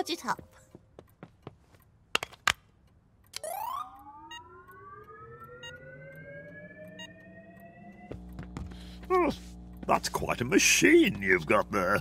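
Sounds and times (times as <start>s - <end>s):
rising electronic whine: 3.4s - 9.8s
faint beeps: 3.5s - 8.1s.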